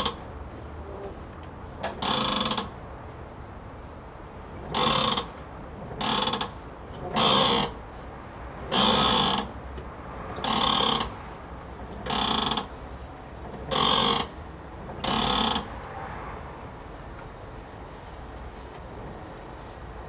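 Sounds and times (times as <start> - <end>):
strut bearing squeaking: 4.6 - 7.8, 8.7 - 9.5, 13.5 - 15.8.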